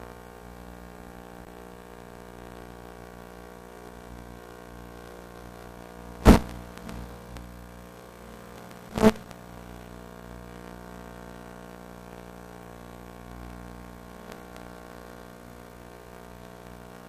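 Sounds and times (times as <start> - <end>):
faint electrical hum: 0.0 - 17.0
sharp thumps: 6.2 - 6.6.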